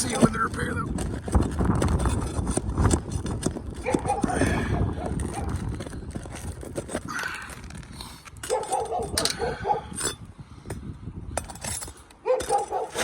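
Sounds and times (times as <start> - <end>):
dog yipping barks: 3.8 - 4.4, 8.5 - 9.9, 12.2 - 13.0.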